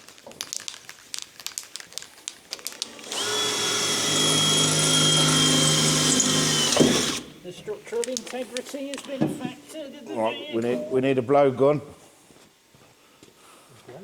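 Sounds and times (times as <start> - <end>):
power drill whining: 2.6 - 7.4.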